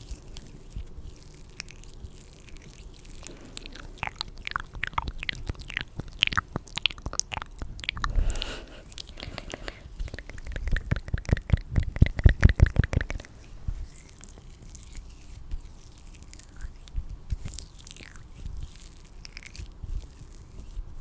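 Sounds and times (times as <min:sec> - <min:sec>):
close clicking and crackling: 0:09.0 - 0:15.0.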